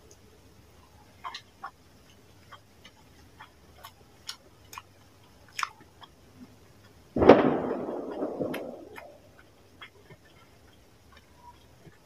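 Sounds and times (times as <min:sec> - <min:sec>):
loud chewing: 0:01.1 - 0:07.0, 0:08.0 - 0:12.0
wet mouth clicks: 0:05.5 - 0:06.2.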